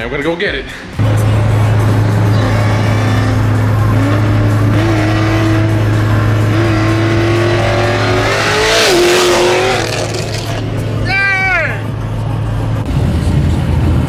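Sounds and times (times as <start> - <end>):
car engine accelerating: 0.9 - 11.0, 12.6 - 14.0.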